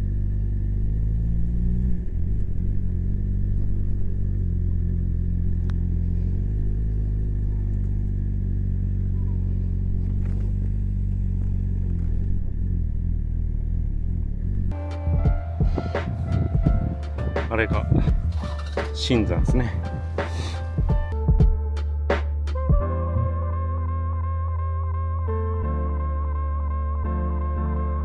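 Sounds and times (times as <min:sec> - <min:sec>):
motorcycle engine running: 0:00.0 - 0:21.7.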